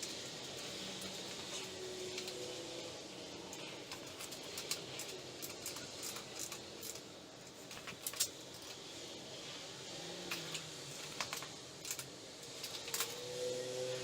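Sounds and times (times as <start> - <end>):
light clicks and taps of tools: 0.0 - 2.6, 3.5 - 8.9, 10.3 - 13.3.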